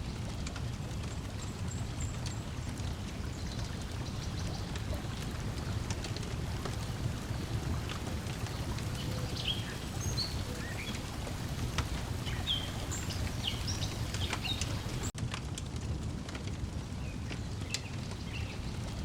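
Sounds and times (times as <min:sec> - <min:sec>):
wood fire crackling: 0:00.0 - 0:19.0
water lapping: 0:00.2 - 0:15.2
small birds chirping: 0:01.1 - 0:15.1.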